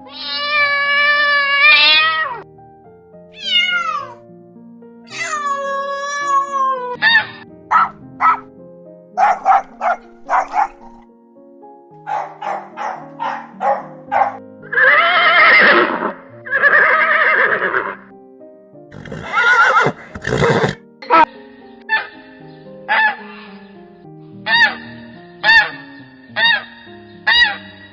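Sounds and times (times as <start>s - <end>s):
background music: 0.0s - 27.9s
horse whinnying: 1.6s - 2.2s, 14.6s - 18.1s, 18.9s - 20.8s.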